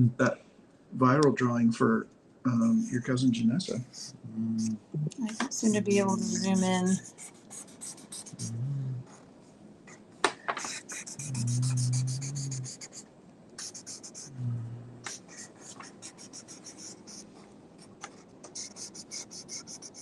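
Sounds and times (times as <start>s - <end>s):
low voice humming: 3.7s - 7.1s, 7.8s - 9.1s, 10.7s - 13.0s, 13.6s - 15.4s
pen scratching on paper: 5.4s - 8.6s, 10.6s - 14.4s, 15.1s - 20.0s.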